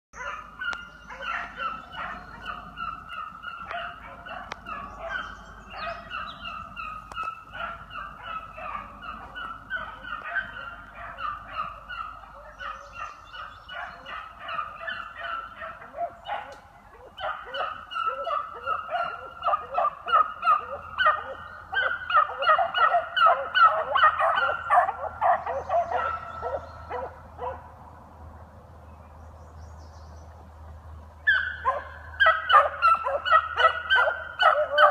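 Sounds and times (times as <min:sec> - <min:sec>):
hounds baying and yelping: 0:00.2 - 0:27.7, 0:31.2 - 0:34.9.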